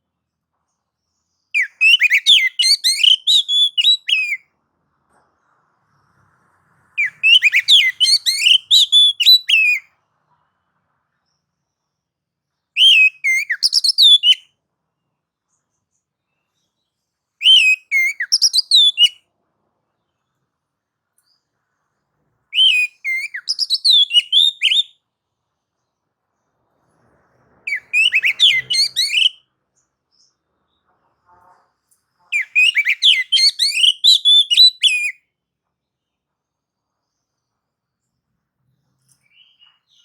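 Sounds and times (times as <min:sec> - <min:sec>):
bird singing whistled phrases: 0:01.5 - 0:04.4, 0:07.0 - 0:09.8, 0:12.8 - 0:14.5, 0:17.4 - 0:19.2, 0:22.5 - 0:25.0, 0:27.7 - 0:29.4, 0:32.3 - 0:35.2.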